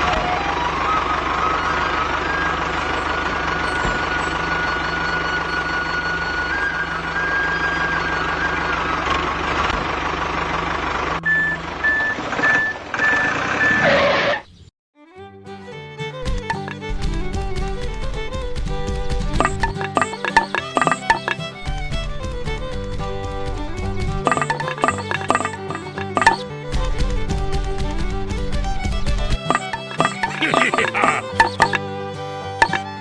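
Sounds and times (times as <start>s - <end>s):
tractor engine running: 0.0s - 12.7s, 16.2s - 32.0s
reversing alarm beeping: 0.9s - 8.8s, 11.2s - 14.0s.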